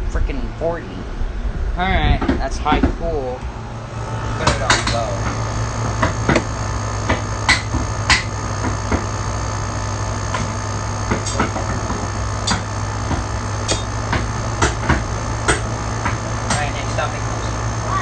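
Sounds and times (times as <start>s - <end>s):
air conditioner humming: 0.0s - 18.0s
sharp irregular clicks and taps: 4.4s - 9.1s, 11.1s - 17.0s.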